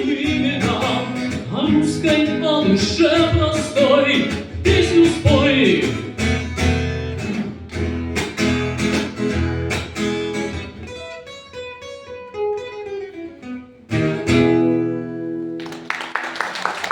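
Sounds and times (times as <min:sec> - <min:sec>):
acoustic guitar strummed chords: 0:00.0 - 0:15.6
guitar picked notes: 0:00.0 - 0:15.8.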